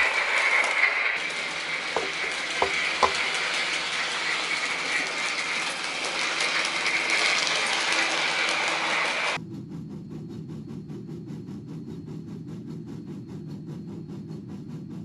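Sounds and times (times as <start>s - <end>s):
model train motor hum: 0.0s - 9.4s
wheels clicking over rail joints: 0.0s - 9.4s.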